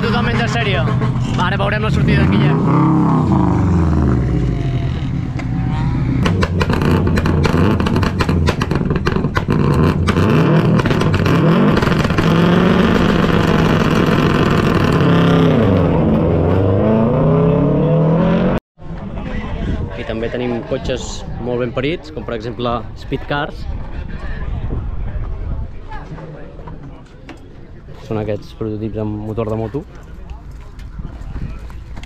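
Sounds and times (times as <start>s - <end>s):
car engine revving: 0.0s - 18.6s.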